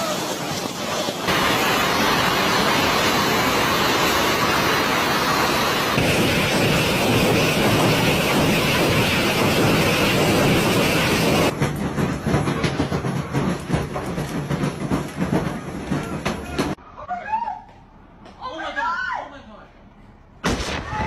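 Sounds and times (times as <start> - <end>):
heavy hail pelting down: 0.0 - 11.6.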